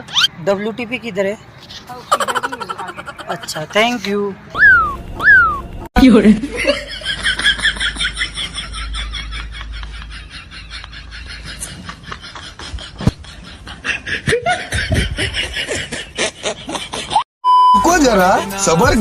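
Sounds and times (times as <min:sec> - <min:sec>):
high-pitched laughter: 0:02.0 - 0:03.4, 0:06.3 - 0:17.2.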